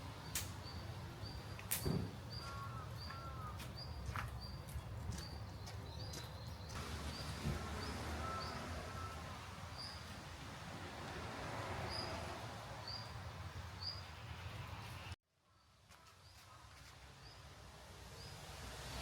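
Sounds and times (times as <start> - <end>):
birds chirping: 0.2 - 10.3, 11.8 - 15.2
lower bird calls: 2.3 - 4.1.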